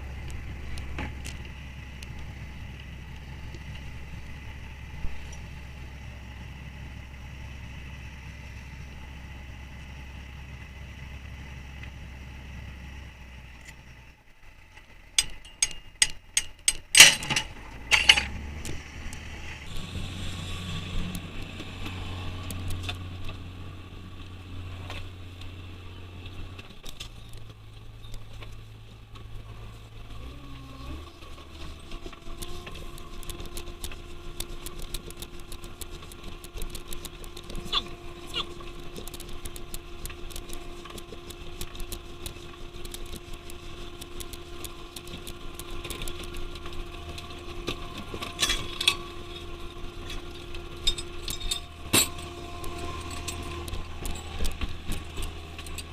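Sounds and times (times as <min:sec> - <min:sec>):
boat engine running: 0:00.0 - 0:55.9
machinery drone: 0:00.0 - 0:55.9
sharp metallic clanks: 0:15.2 - 0:18.4, 0:50.8 - 0:52.3.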